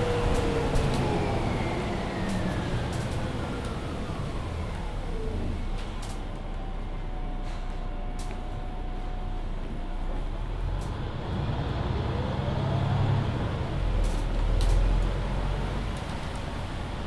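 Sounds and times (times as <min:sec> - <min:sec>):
bus engine deep rumble: 0:00.0 - 0:17.0.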